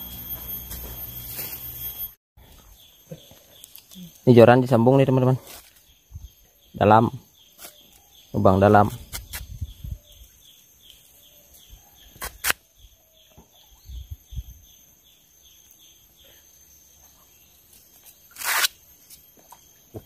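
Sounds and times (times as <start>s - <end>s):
steady high whine: 0.0s - 7.3s
bird chirping: 2.4s - 20.0s.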